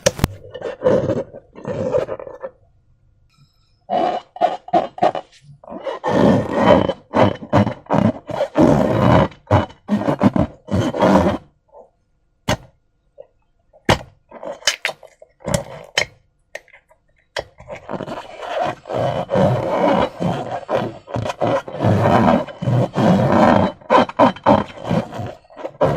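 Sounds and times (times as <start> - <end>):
slime squelching: 13.8 - 25.9.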